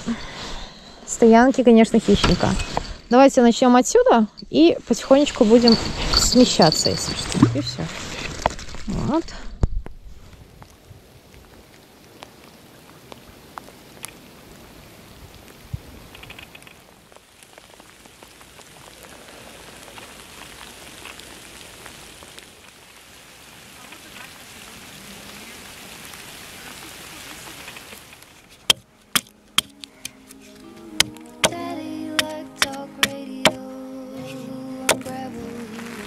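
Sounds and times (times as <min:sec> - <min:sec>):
light rain pattering: 0:00.0 - 0:36.0
axe chopping sapling: 0:28.6 - 0:31.6, 0:32.2 - 0:33.6, 0:34.9 - 0:35.1.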